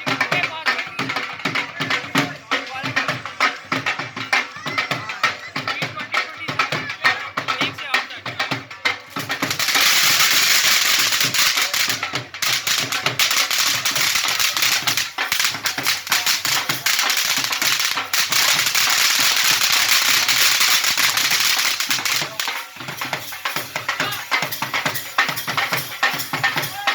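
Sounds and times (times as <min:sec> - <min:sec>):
firework crackling: 0:09.1 - 0:26.9.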